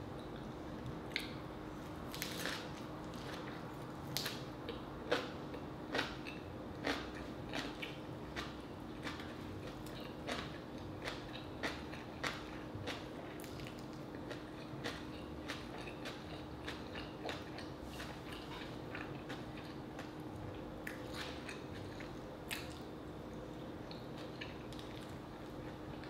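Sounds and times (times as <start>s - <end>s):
person chewing crunchy food: 2.0s - 26.0s.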